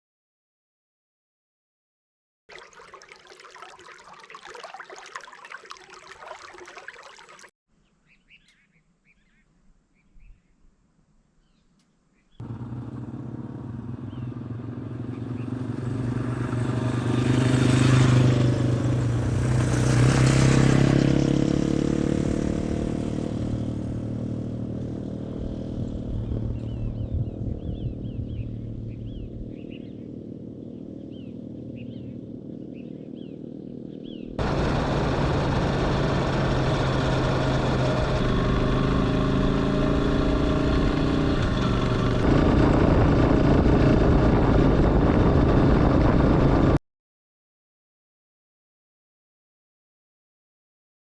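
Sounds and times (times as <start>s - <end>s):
faint bird chirps: 7.8s - 10.7s, 11.4s - 12.4s
motorcycle engine running: 12.4s - 46.8s.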